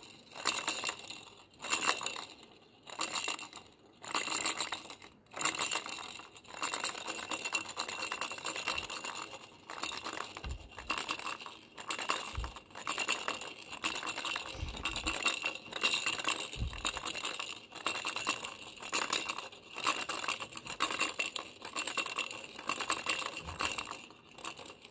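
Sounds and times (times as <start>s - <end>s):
baby rattle shaking: 5.4s - 24.9s
low thumps: 14.5s - 15.2s, 16.6s - 17.0s.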